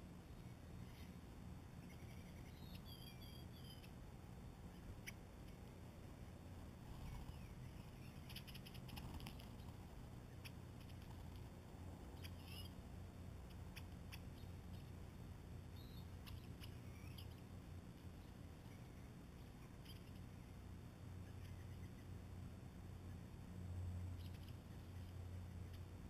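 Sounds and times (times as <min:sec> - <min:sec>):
low steady hum: 0:00.0 - 0:26.0
songbird chirps: 0:00.0 - 0:26.0
small clicks: 0:08.3 - 0:09.8.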